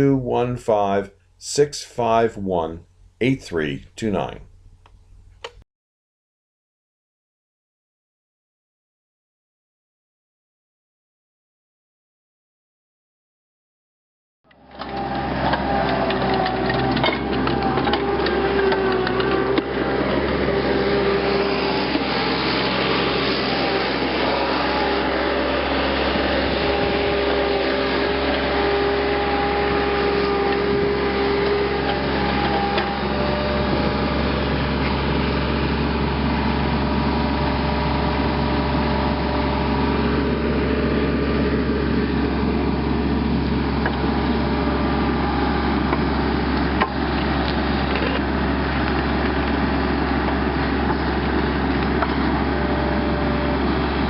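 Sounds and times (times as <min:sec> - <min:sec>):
click: 0:04.8 - 0:05.6
motor hum: 0:14.5 - 0:54.0.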